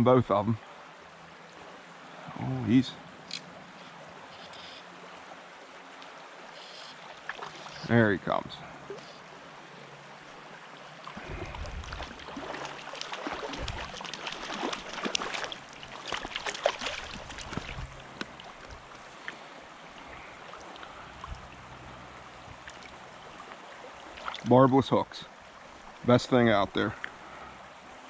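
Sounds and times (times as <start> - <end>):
stream water running: 0.0 - 28.0
fish splashing: 6.7 - 7.8, 11.1 - 19.3.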